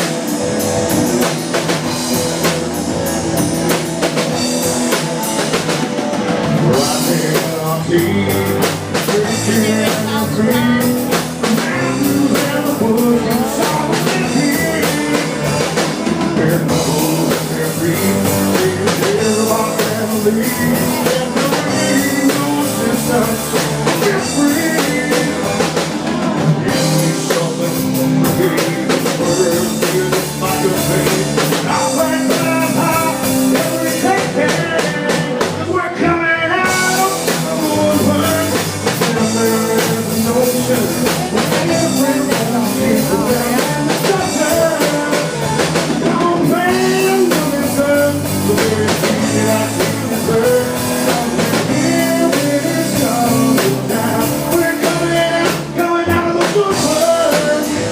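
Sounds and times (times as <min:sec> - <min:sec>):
rock band playing: 0:00.0 - 0:57.9.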